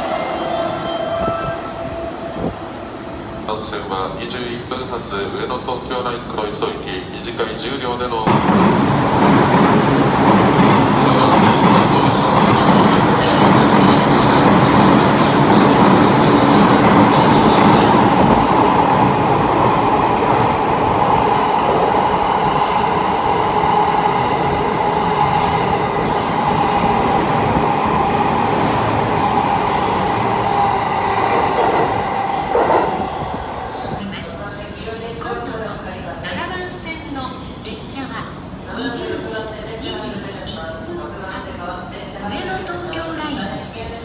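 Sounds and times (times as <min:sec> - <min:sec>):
train wheels on rails: 0:08.3 - 0:34.4.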